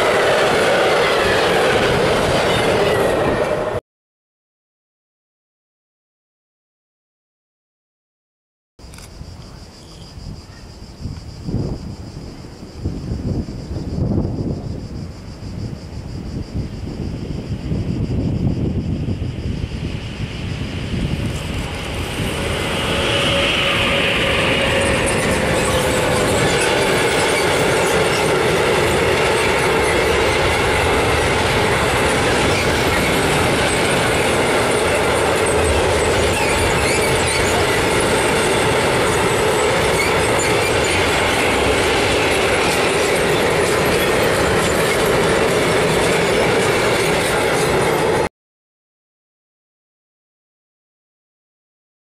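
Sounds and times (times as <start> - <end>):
freight train passing: 0.0 - 3.8, 11.6 - 48.3
wagon wheels on rails: 21.4 - 48.3.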